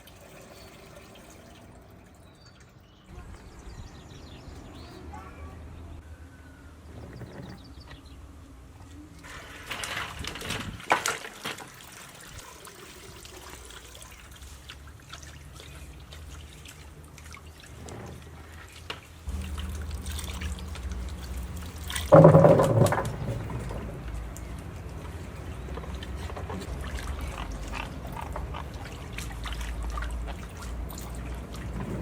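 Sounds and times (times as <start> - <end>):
water pouring and trickling: 0.0 - 3.1, 8.9 - 32.0
clicks and knocks: 22.1 - 24.4.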